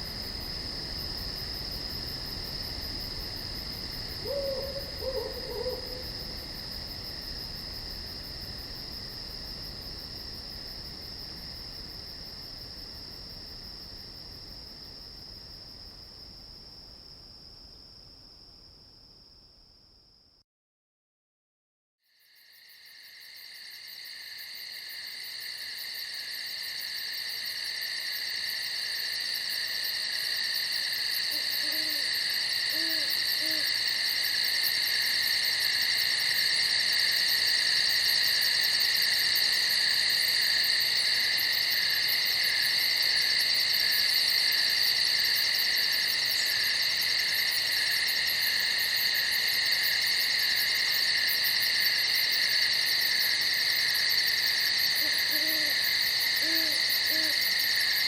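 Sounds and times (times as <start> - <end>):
crickets chirping: 0.0 - 20.4, 22.1 - 58.0
owl hooting softly: 4.2 - 6.1, 31.3 - 32.1, 32.7 - 33.8, 55.0 - 55.8, 56.4 - 57.5.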